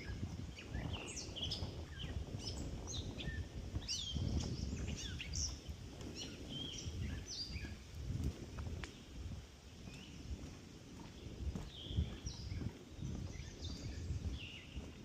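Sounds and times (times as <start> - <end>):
songbirds singing and chirping: 0.0 - 15.0.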